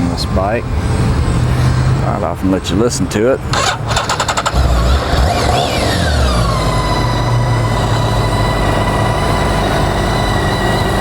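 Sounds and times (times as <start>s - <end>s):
motorcycle engine idling: 3.5s - 11.0s.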